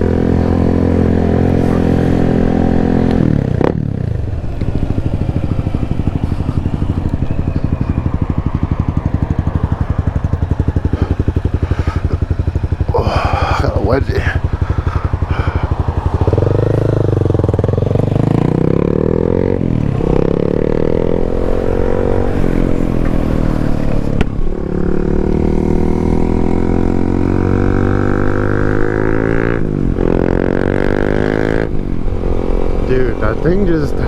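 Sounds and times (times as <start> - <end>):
motorcycle engine accelerating: 0.0 - 34.0
wind rushing: 5.1 - 24.0.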